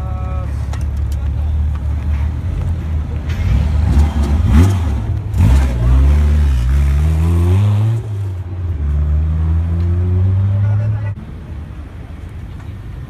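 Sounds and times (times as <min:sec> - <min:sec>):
sports car engine revving: 0:03.4 - 0:10.8.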